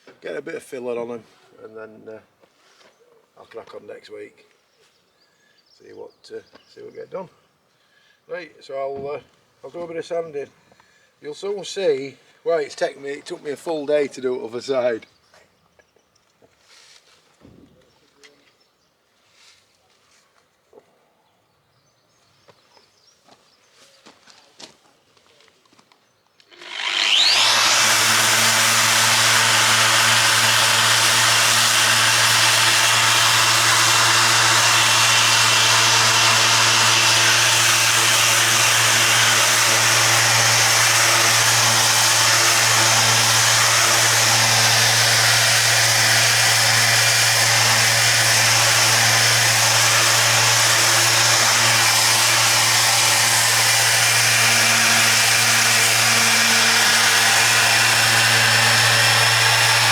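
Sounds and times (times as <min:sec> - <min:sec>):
electric power sander: 0:26.5 - 0:59.9.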